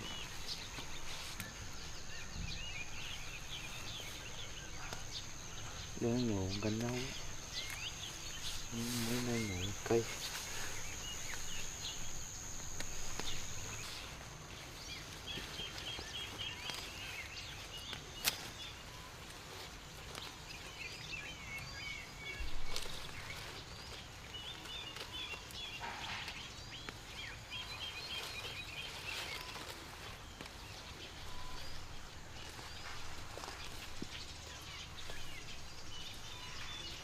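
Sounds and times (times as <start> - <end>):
high steady whine: 0.0 - 14.7
rustle: 0.0 - 37.0
small birds chirping: 0.0 - 37.0.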